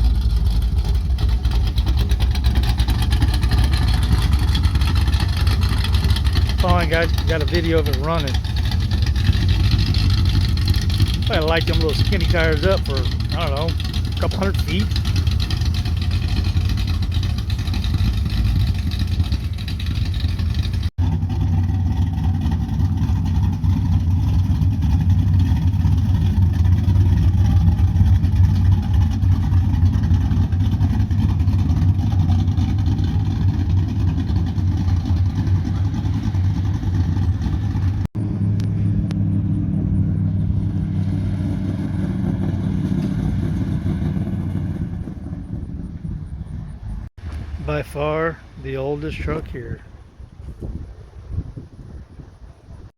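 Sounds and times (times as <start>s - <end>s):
truck engine running: 0.0s - 52.9s.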